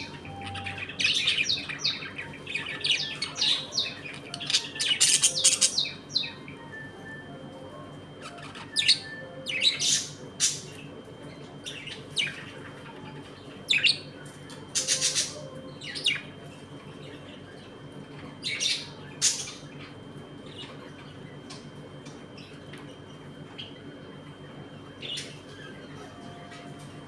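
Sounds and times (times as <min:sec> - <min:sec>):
budgerigars chirping: 0:00.0 - 0:06.4, 0:08.2 - 0:10.8, 0:14.8 - 0:16.3, 0:18.4 - 0:19.7.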